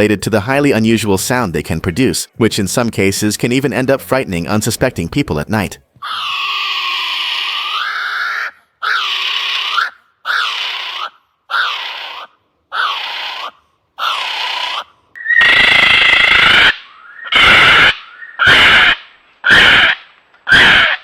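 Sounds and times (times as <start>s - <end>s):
kiwi calling: 6.0s - 21.0s.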